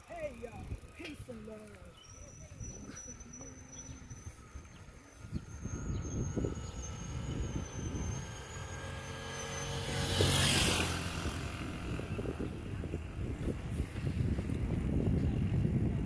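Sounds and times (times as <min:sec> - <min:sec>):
low uneven rumble: 0:00.0 - 0:16.0
vehicle engine passing by: 0:03.4 - 0:15.1.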